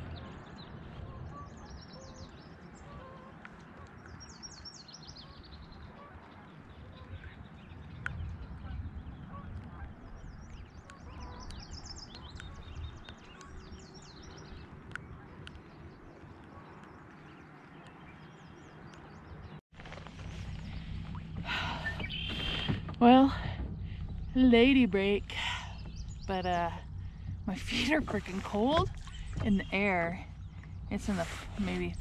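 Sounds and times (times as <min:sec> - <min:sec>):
small birds singing trills: 0:04.0 - 0:09.4, 0:10.1 - 0:19.6, 0:21.8 - 0:22.8, 0:25.1 - 0:27.9.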